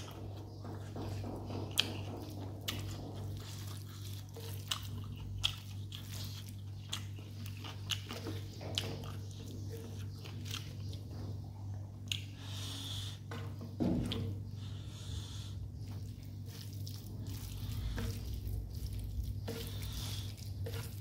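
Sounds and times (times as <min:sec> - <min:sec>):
steady low hum: 0:00.0 - 0:21.0
wet crunching chewing: 0:01.7 - 0:11.3, 0:15.3 - 0:21.0.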